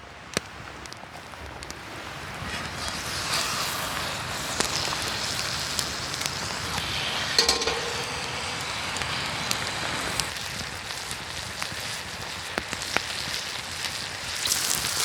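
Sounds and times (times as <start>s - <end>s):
ringing knock: 7.4s - 9.4s
campfire crackling: 8.7s - 15.0s.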